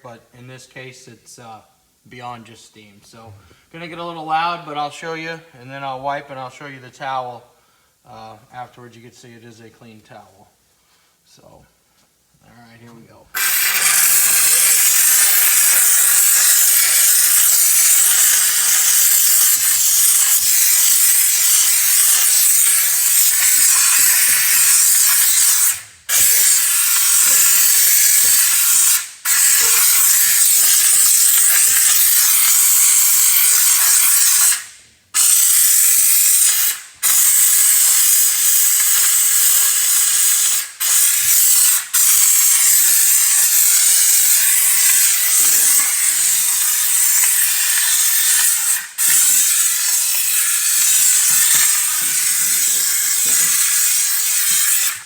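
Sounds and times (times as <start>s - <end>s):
steam cleaner hissing: 13.3s - 55.0s.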